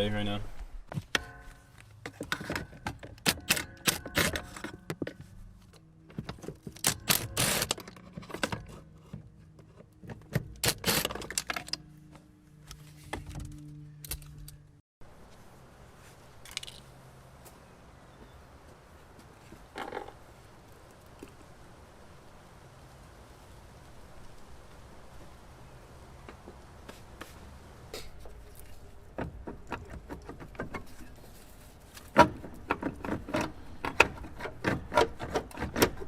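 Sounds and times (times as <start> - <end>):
tools and metal parts clattering: 1.1 - 5.4, 6.1 - 11.9.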